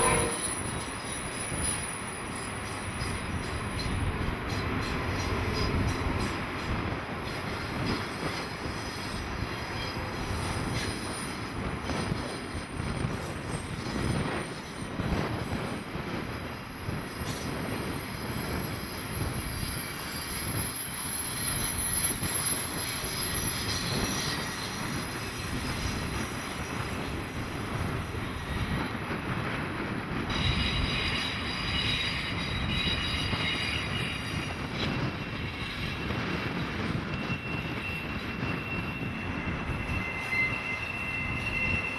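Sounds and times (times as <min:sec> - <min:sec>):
train cars rumbling on rails: 0:00.0 - 0:41.9
wheel squeal: 0:17.1 - 0:27.2, 0:30.3 - 0:41.9.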